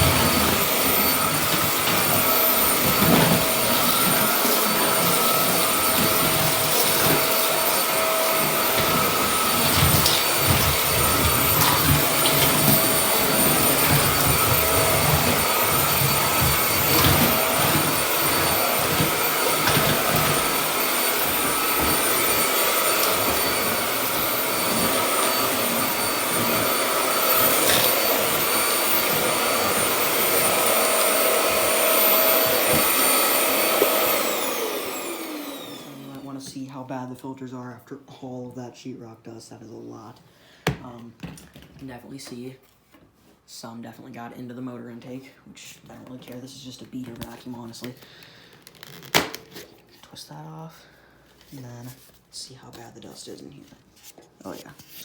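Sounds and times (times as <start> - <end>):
vacuum cleaner whining: 0.0 - 36.8.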